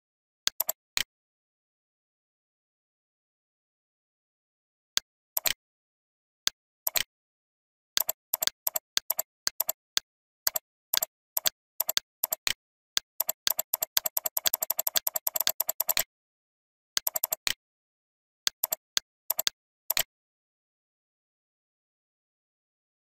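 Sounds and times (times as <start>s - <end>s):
computer mouse clicking: 0.5s - 1.1s, 5.4s - 5.6s, 6.9s - 7.1s, 8.0s - 16.1s, 17.0s - 17.6s, 18.5s - 20.1s.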